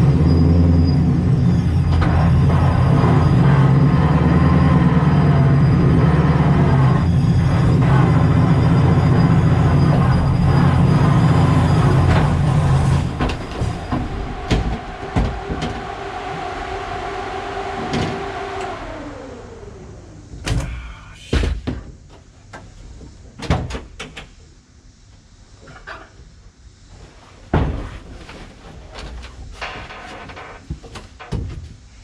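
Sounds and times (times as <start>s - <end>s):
car engine running loudly: 0.0s - 20.9s
supercharger whine: 0.0s - 21.3s.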